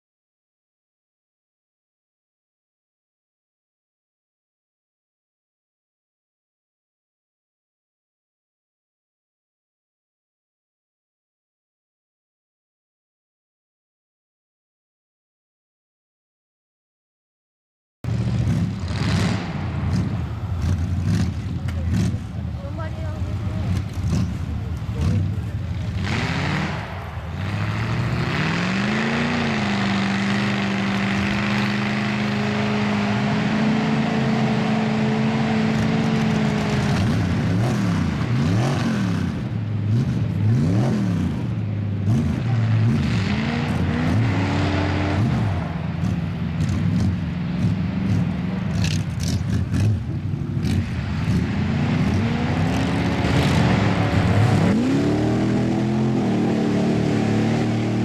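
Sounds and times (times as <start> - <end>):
truck engine revving: 18.1 - 58.0.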